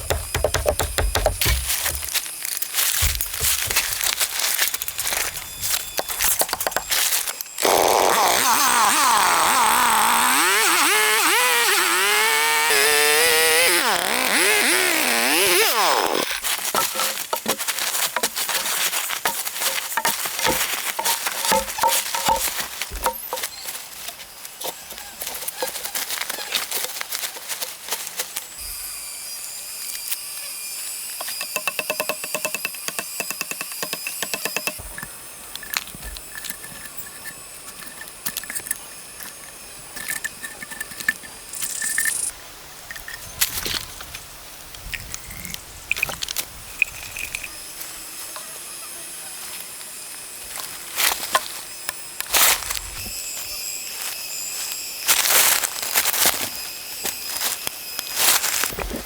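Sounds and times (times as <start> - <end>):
rapid clicks and knocks: 0.0 - 2.1
chainsaw revving: 7.6 - 16.4.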